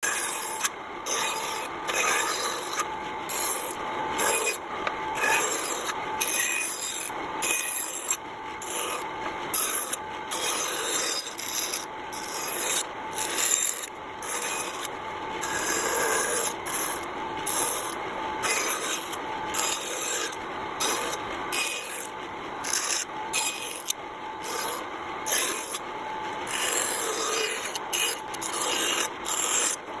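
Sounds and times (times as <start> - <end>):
hand tool scraping wood: 26.5 - 29.8.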